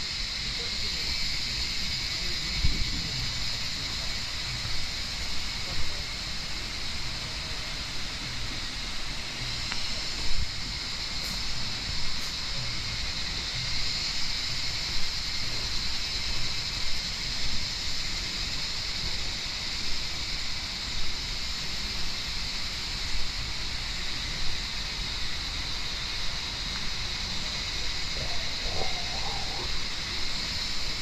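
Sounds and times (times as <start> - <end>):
high-pitched hiss: 0.0 - 31.0
wind rumble on microphone: 1.2 - 4.1.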